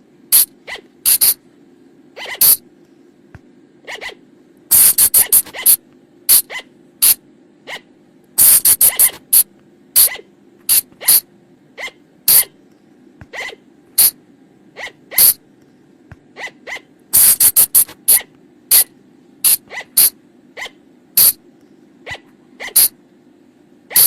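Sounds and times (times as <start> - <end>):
faint low hum: 0.0 - 24.0
colugo high-pitched squeaks: 0.4 - 1.4, 2.2 - 2.6, 3.8 - 9.2, 10.0 - 12.5, 13.3 - 14.2, 14.8 - 15.4, 16.4 - 21.4, 22.1 - 22.9.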